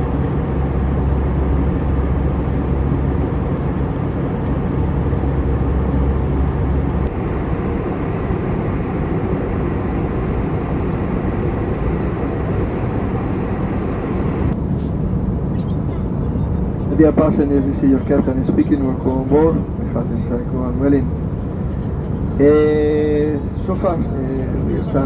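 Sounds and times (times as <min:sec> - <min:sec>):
deep low drone: 0:00.0 - 0:15.5
airplane cabin engine and airflow noise: 0:00.0 - 0:25.0.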